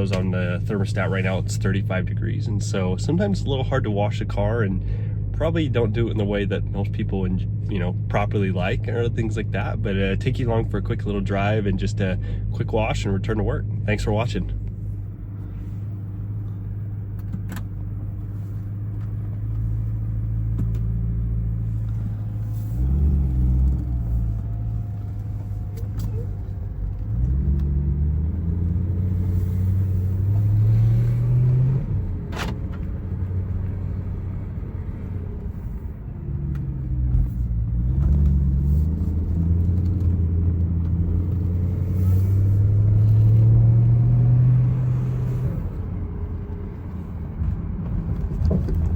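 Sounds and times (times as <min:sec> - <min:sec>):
low exhaust rumble: 0:00.0 - 0:48.9
car engine accelerating through gears: 0:13.7 - 0:48.9.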